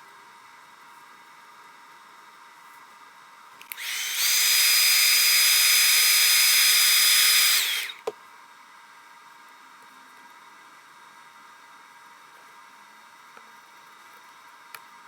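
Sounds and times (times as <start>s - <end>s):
hot-air blower whine: 3.6s - 9.2s.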